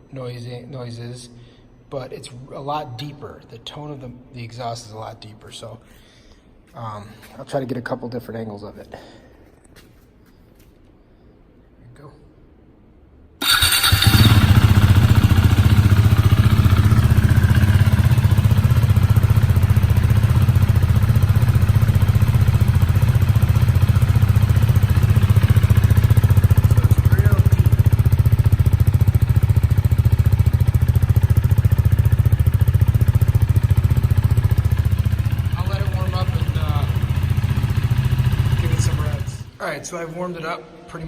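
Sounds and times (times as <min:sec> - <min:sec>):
motorcycle engine starting and idling: 0:13.4 - 0:39.6.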